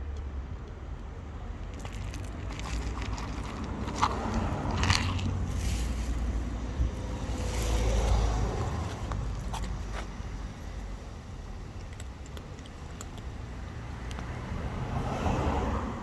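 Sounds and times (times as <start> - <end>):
crunching clicks: 0.1 - 5.5, 11.6 - 13.4.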